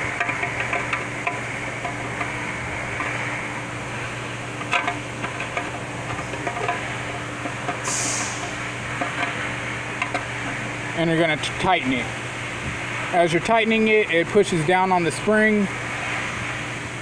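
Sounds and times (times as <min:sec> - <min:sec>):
metallic clicks and scrapes: 0:00.0 - 0:03.4, 0:04.6 - 0:10.6
steady low hum: 0:00.0 - 0:17.0
short hiss: 0:07.8 - 0:08.4.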